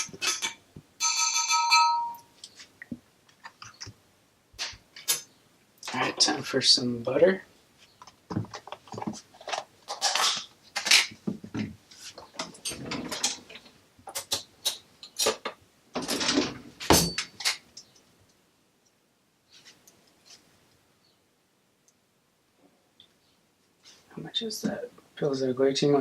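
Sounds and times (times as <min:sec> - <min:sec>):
kitchen items clicking and rustling: 0:00.0 - 0:01.8, 0:08.0 - 0:17.7.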